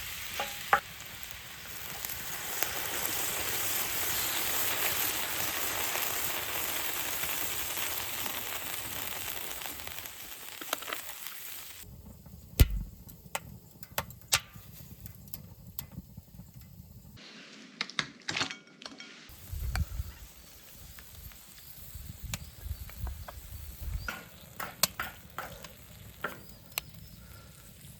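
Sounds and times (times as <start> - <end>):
food sizzling: 0.0 - 11.9, 19.3 - 27.9
sharp clicks and knocks: 12.6 - 14.6.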